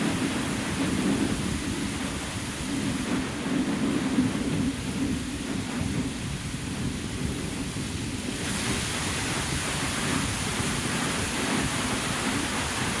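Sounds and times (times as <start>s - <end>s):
wind on microphone: 0.0s - 13.0s
water fountain splashing: 8.2s - 13.0s.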